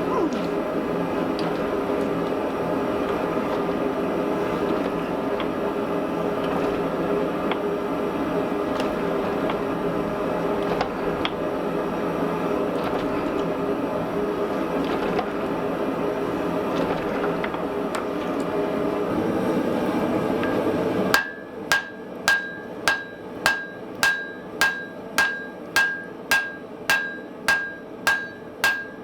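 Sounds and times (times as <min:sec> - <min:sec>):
forge roaring: 0:00.0 - 0:10.2.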